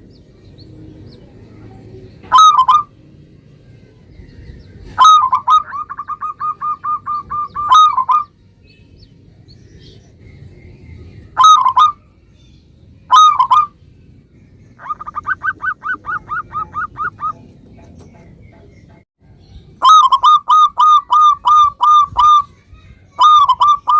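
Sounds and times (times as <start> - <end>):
dove cooing: 0.8 - 3.0, 4.8 - 8.3, 11.4 - 12.0, 13.1 - 13.7, 14.8 - 18.4, 19.8 - 22.5, 23.2 - 23.9.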